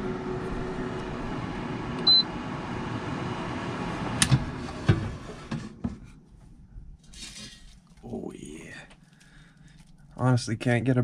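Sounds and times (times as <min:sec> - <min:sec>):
air fryer fan running: 0:00.0 - 0:05.9.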